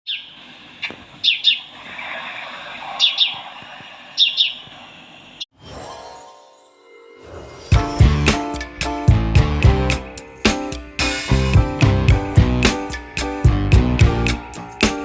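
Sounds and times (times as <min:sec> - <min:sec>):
background bird calls: 0:00.1 - 0:05.5
bird chirping falling notes: 0:01.2 - 0:01.7, 0:03.0 - 0:03.5, 0:04.2 - 0:04.8.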